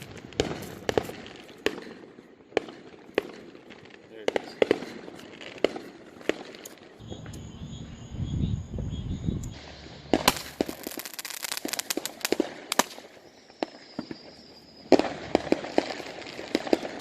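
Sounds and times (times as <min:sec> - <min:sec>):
fireworks crackling and popping: 0:00.0 - 0:07.5, 0:09.4 - 0:17.0.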